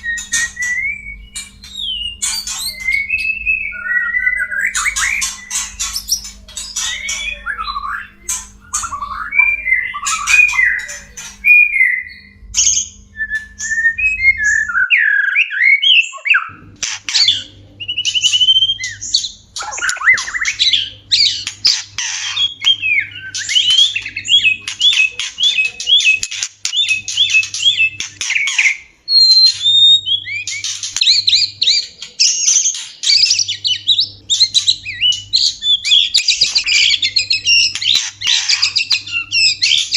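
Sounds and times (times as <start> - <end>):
shama whistled song: 0.0 - 5.3, 13.1 - 16.5
low hum: 0.0 - 14.8.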